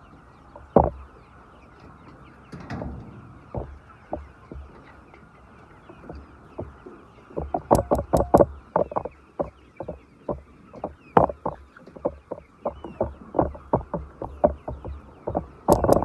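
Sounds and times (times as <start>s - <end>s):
chickens clucking: 0.0s - 16.0s
sharp clicks or taps: 7.4s - 16.0s.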